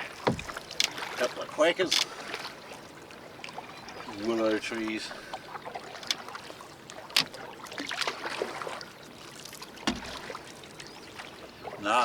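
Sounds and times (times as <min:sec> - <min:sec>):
water splashing from paddling: 0:00.0 - 0:12.0
sharp knocks: 0:00.2 - 0:00.9, 0:09.9 - 0:10.2.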